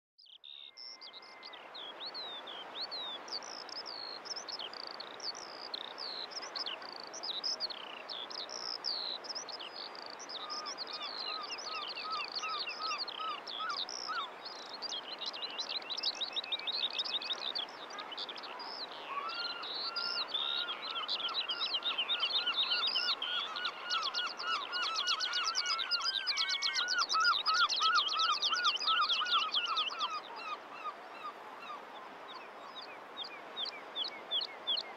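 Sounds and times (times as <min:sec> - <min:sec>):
small birds singing: 0:00.2 - 0:34.9.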